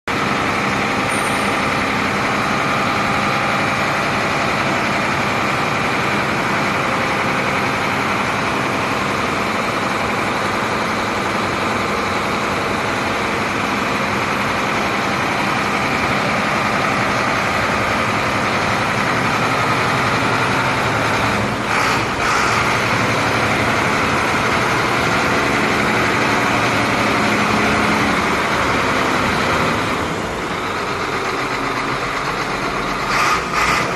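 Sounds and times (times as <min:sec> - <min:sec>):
diesel truck engine idling: 0:00.1 - 0:33.9.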